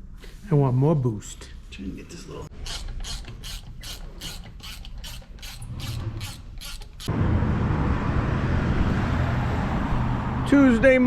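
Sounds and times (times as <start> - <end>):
ratchet wrench clicking: 2.6 - 7.1.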